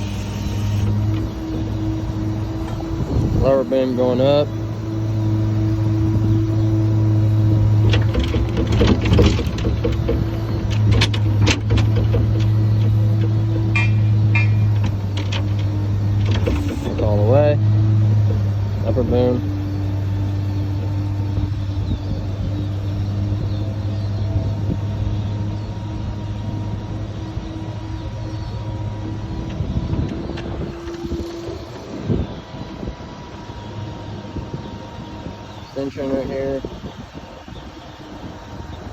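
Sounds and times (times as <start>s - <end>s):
truck engine humming: 0.0s - 38.9s
creaks and clicks: 7.6s - 17.1s, 29.4s - 32.1s.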